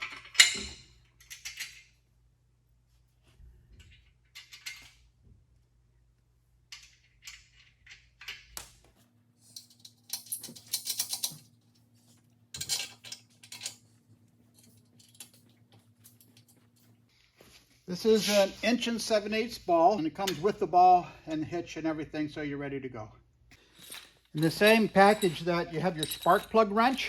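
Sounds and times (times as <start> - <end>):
small metal parts clinking: 0.0 - 1.9, 3.8 - 5.0, 9.4 - 11.6, 12.5 - 13.9, 14.5 - 16.6, 23.6 - 27.0.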